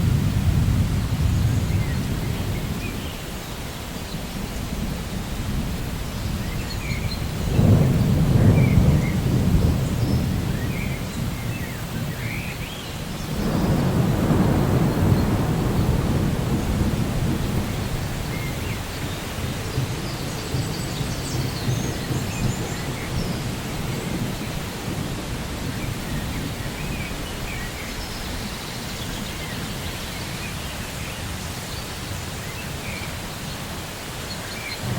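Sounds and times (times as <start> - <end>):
rolling thunder: 0.0 - 3.0, 4.4 - 12.5, 13.2 - 29.7
steady rain: 0.0 - 34.9
birds chirping: 6.0 - 34.9.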